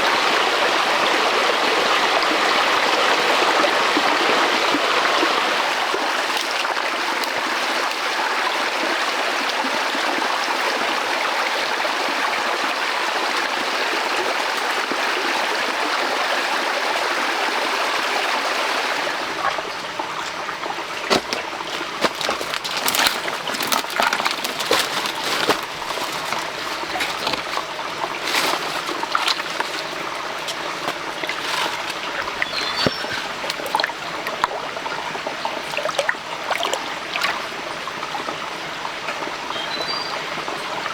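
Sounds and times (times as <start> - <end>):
stream water running: 0.0 - 40.9
water splashes and clicks: 6.1 - 8.0, 19.2 - 38.1.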